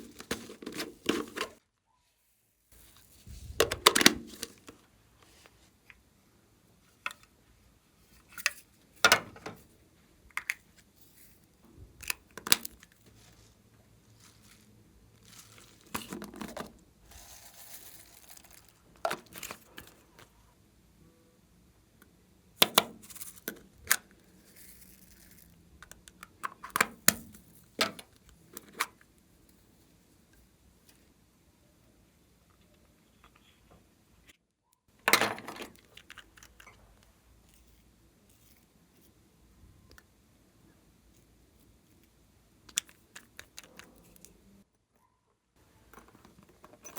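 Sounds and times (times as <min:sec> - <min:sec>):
slime stretching crinkly sound: 0:12.8 - 0:16.1.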